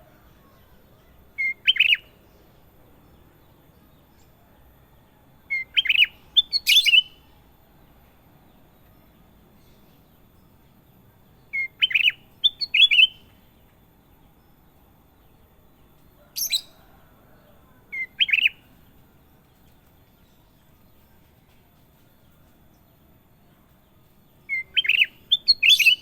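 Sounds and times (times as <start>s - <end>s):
bulbul singing chirpy whistles: 1.4s - 2.1s, 5.5s - 7.3s, 11.5s - 13.3s, 17.9s - 18.7s, 24.4s - 26.0s.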